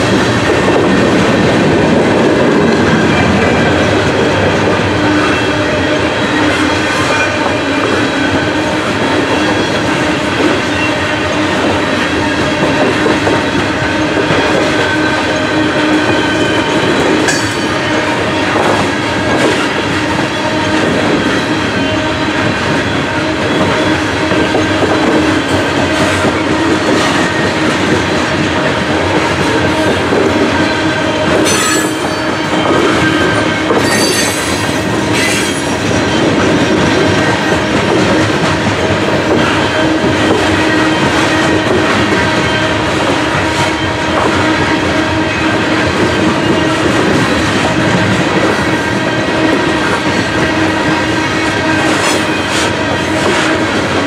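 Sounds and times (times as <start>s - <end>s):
train wheels rumbling on rails: 0.0s - 54.0s
high wheel squeals: 30.5s - 36.4s.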